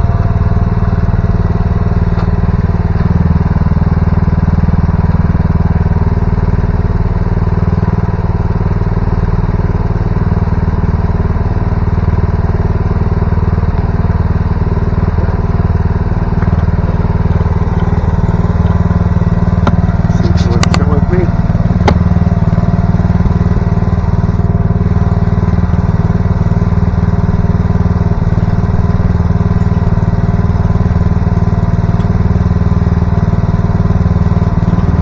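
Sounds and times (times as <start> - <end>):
small diesel engine running: 0.0 - 35.0.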